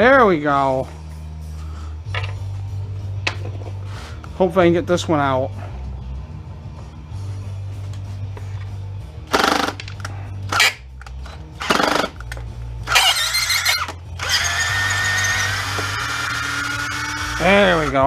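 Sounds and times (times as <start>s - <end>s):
power drill whining: 9.3s - 9.8s, 11.6s - 18.0s.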